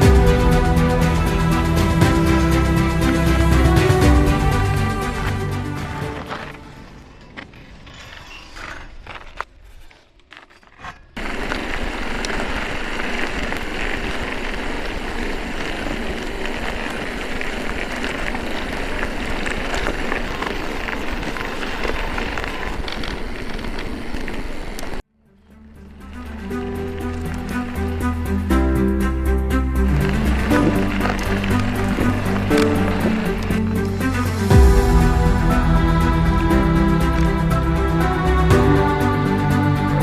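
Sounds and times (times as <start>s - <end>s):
wind and tyre noise: 0.0s - 40.0s.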